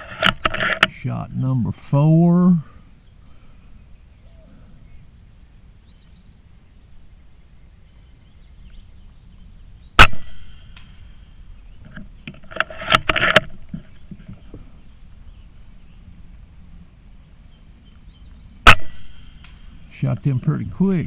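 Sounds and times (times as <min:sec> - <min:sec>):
air rifle shot crack: 0:10.0 - 0:11.1, 0:18.6 - 0:19.8.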